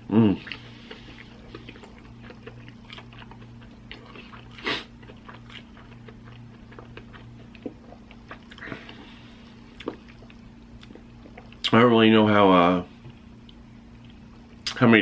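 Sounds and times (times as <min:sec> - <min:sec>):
chewing sandwich: 0:00.2 - 0:11.8.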